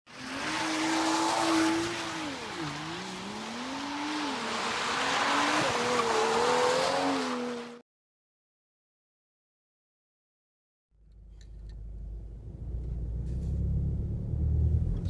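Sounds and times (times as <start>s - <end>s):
car engine accelerating hard: 11.8s - 15.0s.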